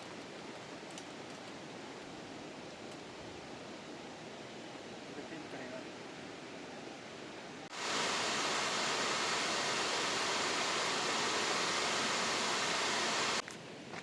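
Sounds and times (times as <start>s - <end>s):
rushing water roar: 7.6s - 13.4s.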